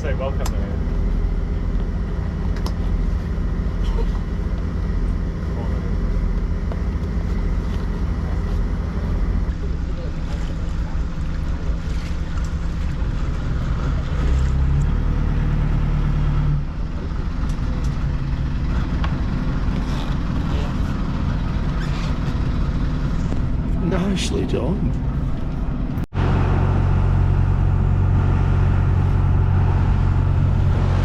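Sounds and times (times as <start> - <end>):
boat engine humming: 0.0 - 31.0.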